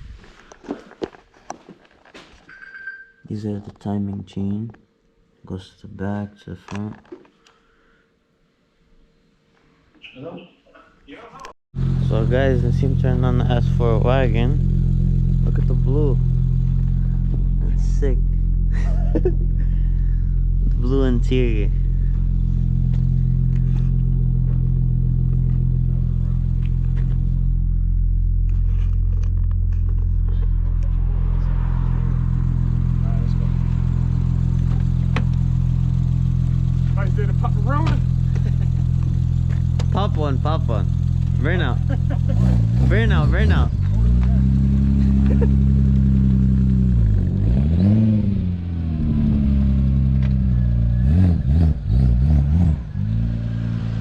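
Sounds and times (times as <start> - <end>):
car engine idling: 11.8 - 54.0.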